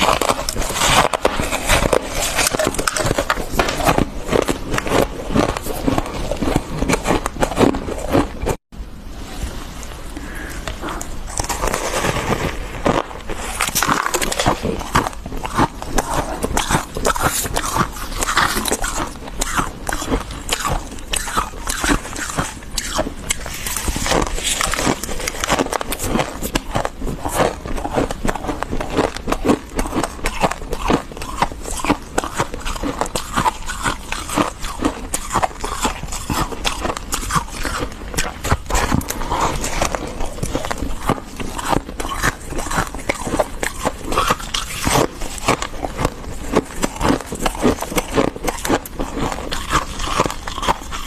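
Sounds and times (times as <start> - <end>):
frost crunching: 10.2 - 51.0.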